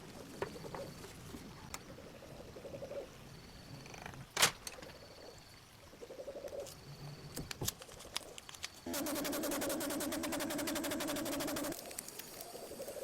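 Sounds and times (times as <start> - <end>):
small electric motor buzzing: 8.9 - 11.8.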